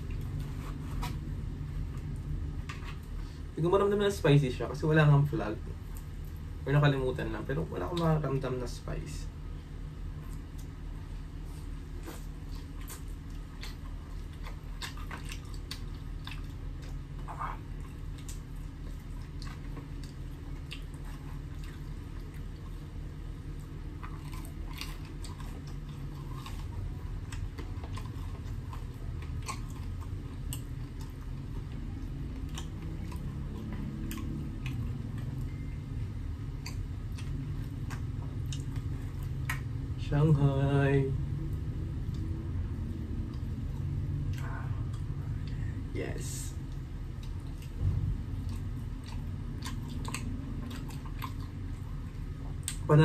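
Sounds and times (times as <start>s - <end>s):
steady low hum: 0.0s - 53.0s
person chewing food: 9.8s - 40.0s, 41.4s - 45.9s, 46.6s - 52.9s.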